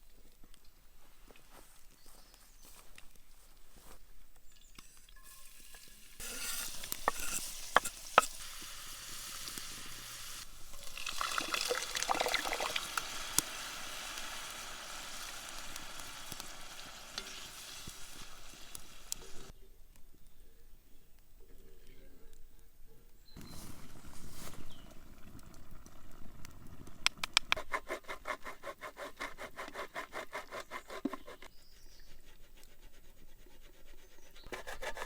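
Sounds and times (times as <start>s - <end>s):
food sizzling in a pan: 5.1s - 19.5s.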